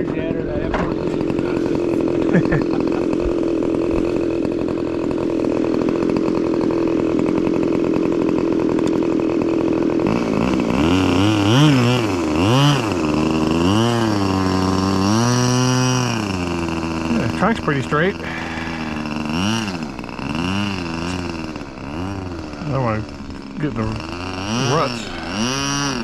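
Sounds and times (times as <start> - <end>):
model airplane engine running: 0.0 - 26.0.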